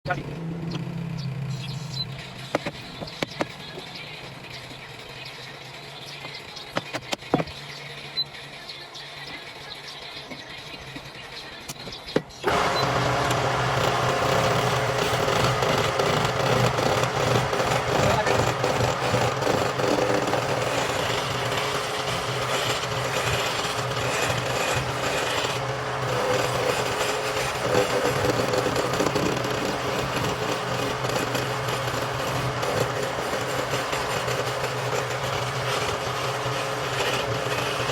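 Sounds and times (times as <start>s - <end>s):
lathe motor humming: 12.4s - 37.9s
turning tool scraping wood: 12.5s - 37.9s.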